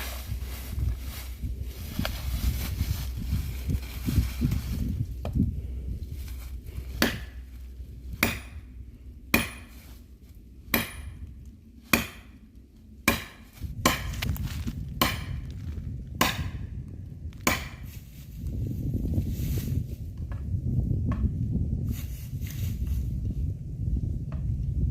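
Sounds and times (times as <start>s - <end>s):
heavy blows on wood: 13.0s - 16.7s, 17.4s - 18.0s.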